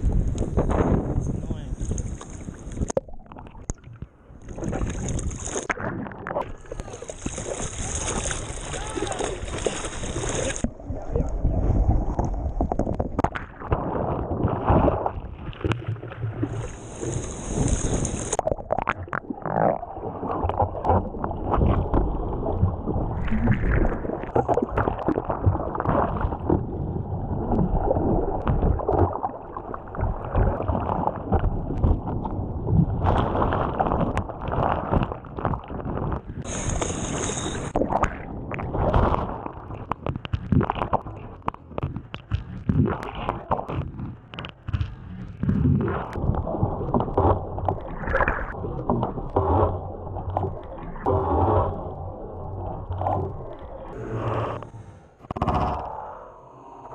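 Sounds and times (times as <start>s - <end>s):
surf water sloshing and splashing: 0.0s - 55.9s
brief high hiss: 36.5s - 37.8s.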